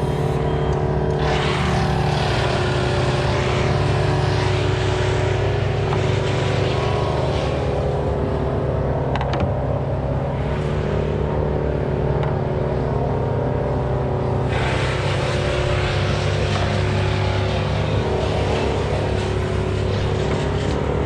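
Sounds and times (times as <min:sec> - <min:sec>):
loud rushing hiss: 0:00.0 - 0:00.4
engine running steadily: 0:00.0 - 0:21.0.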